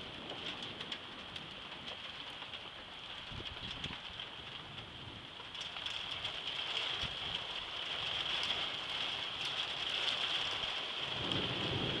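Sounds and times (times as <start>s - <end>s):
low thunder rumble: 0.0s - 5.4s, 10.4s - 12.0s
steady rain falling: 0.0s - 12.0s.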